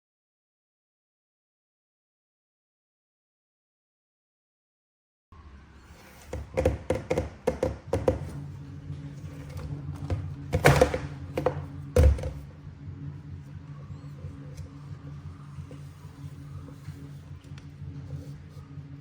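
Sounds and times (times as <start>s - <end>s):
low steady hum: 5.3s - 19.0s.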